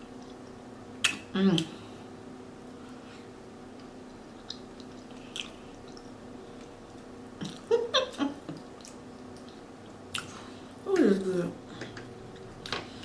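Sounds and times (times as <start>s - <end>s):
faint steady hum: 0.0s - 13.0s
wet mouth sounds: 1.0s - 1.7s
chewing and smacking food: 3.7s - 7.7s, 8.4s - 10.5s.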